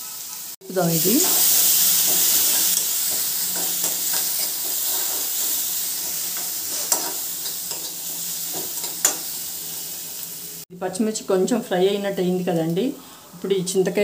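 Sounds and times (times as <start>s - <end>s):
paste sizzling in hot oil: 0.0s - 10.7s
steel spoon scraping a wok: 0.1s - 9.8s.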